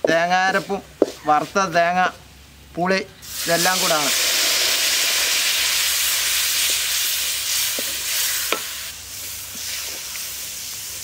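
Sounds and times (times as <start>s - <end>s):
paste sizzling in hot oil: 3.2s - 11.0s.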